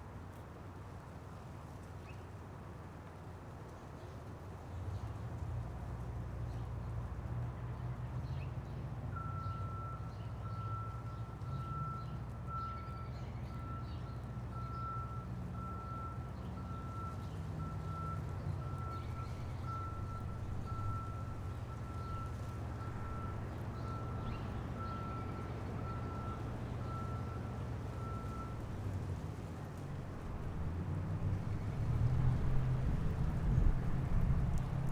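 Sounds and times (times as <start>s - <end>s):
large vehicle engine rumbling: 5.2s - 34.9s
reversing alarm beeping: 9.2s - 28.6s.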